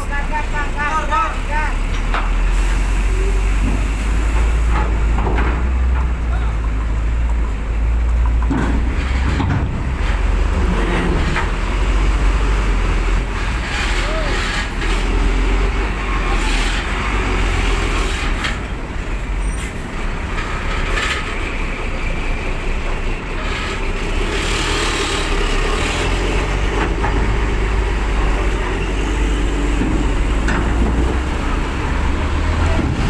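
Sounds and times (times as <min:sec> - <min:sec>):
truck engine deep rumble: 0:00.0 - 0:33.0.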